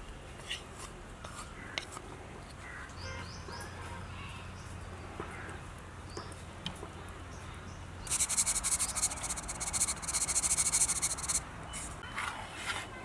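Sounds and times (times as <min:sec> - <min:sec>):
insect high-pitched pulsing call: 0:08.1 - 0:11.4.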